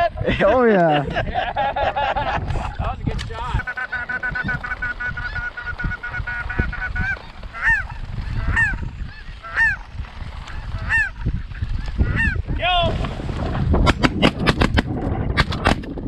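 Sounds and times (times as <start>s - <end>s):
snow geese honking: 3.5s - 12.4s.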